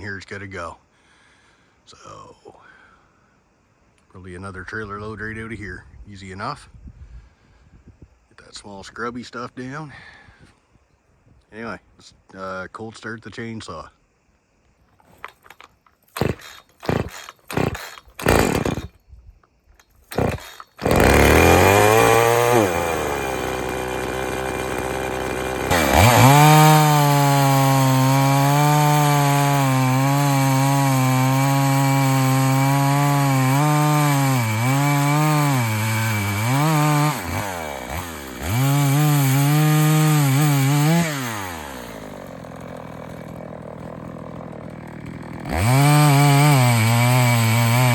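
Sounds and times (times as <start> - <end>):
chainsaw pull cord pulls: 14.9 - 19.0, 19.8 - 47.9
chainsaw engine running: 15.0 - 19.0, 20.0 - 47.9.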